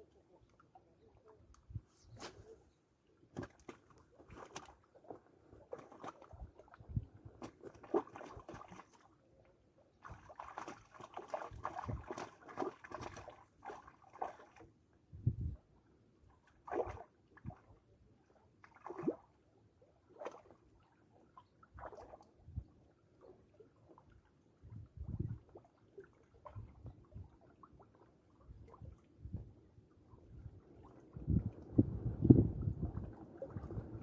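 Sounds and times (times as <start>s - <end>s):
water sloshing and splashing: 2.2s - 15.6s, 16.2s - 34.0s.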